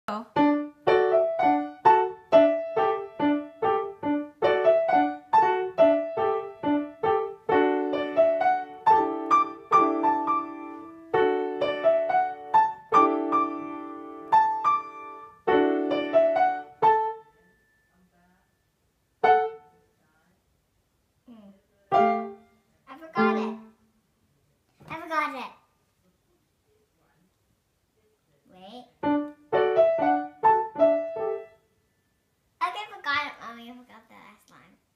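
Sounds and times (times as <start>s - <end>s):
child playing piano: 0.4s - 17.4s, 19.2s - 19.7s, 21.9s - 22.4s, 23.2s - 23.7s, 29.0s - 31.6s.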